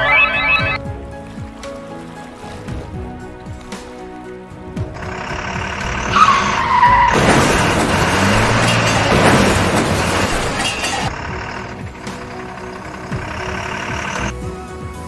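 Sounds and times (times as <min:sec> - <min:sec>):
tyres skidding squeal: 0:00.0 - 0:00.8, 0:05.0 - 0:14.3
loud noisy rush: 0:05.0 - 0:14.3.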